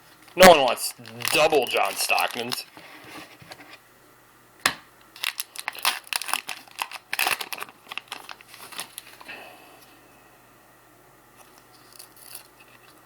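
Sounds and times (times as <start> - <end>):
wrapper snapping: 0.4 - 2.6, 5.2 - 9.3
card pack wrapper tearing: 0.4 - 2.7, 5.2 - 9.2.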